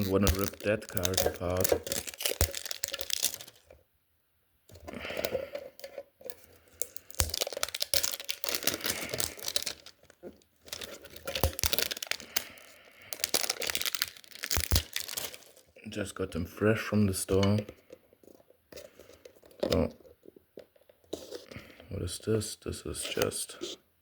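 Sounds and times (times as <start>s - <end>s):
foil wrapper tearing and crinkling: 0.0s - 3.8s, 6.3s - 15.8s.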